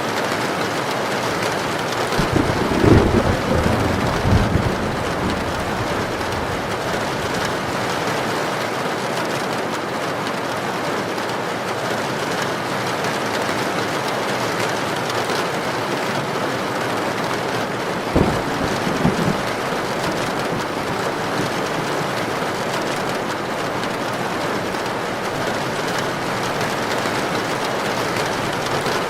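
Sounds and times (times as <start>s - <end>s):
low thunder rumble: 2.2s - 8.0s, 18.0s - 29.0s
heavy rain hissing: 2.2s - 8.3s, 16.0s - 29.0s.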